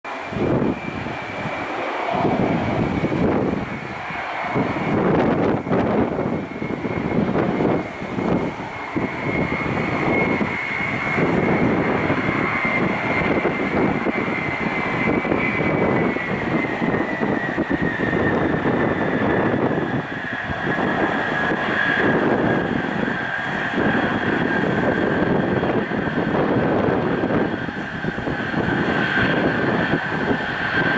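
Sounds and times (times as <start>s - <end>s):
high jet whine: 0.0s - 30.9s
jet engines roaring: 0.0s - 30.9s.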